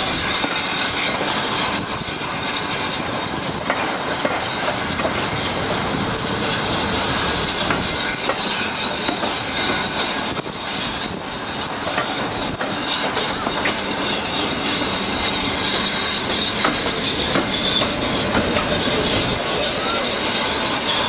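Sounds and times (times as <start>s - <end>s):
wheels rumbling on rail: 0.0s - 21.0s
faint high wheel squeal: 6.4s - 21.0s
clicks over rail joints: 11.8s - 13.8s.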